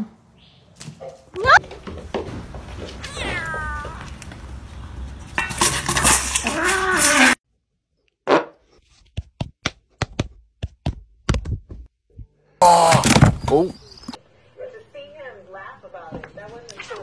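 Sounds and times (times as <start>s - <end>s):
cat hissing and yowling: 3.0s - 4.1s, 6.4s - 7.4s
cat meowing: 3.0s - 4.1s.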